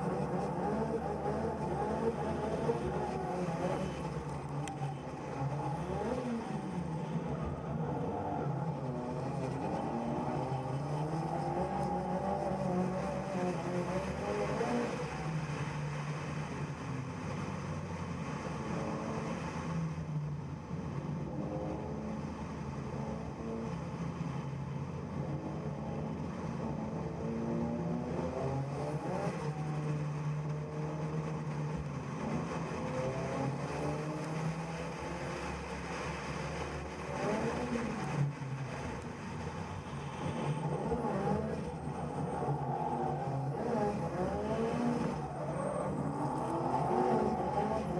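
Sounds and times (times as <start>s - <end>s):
car engine revving: 26.0s - 47.9s.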